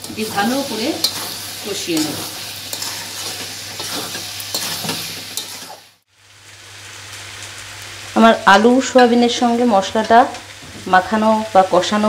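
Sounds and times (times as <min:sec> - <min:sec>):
frying sizzle: 0:00.0 - 0:12.0
spatula scraping metal pan: 0:00.1 - 0:05.8.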